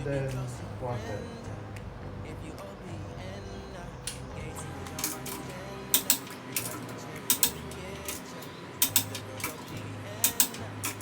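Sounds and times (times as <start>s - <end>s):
torque wrench clicking: 4.9s - 11.0s.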